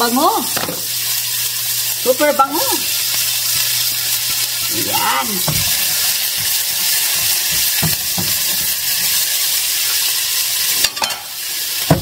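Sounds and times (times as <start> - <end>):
vegetables sizzling in oil: 0.0 - 12.0
spatula scraping a pan: 3.4 - 9.4.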